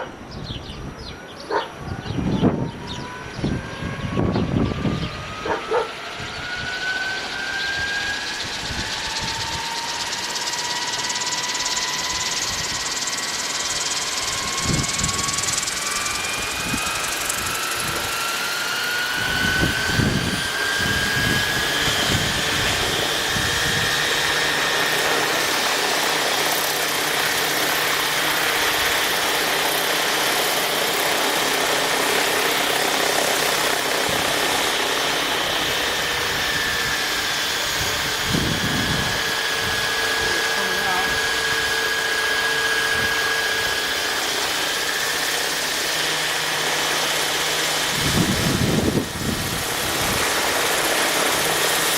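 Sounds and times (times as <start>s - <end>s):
rc helicopter high whine: 0.0s - 51.9s
wind buffeting microphone: 0.2s - 10.3s, 14.2s - 18.3s, 19.1s - 24.3s, 35.4s - 40.4s, 47.8s - 50.8s.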